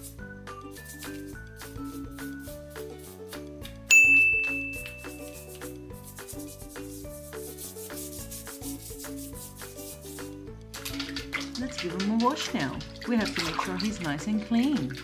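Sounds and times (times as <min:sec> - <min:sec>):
brush scrubbing a toy: 0:00.0 - 0:15.0
light background music: 0:00.0 - 0:15.0
bright ding: 0:03.9 - 0:05.4.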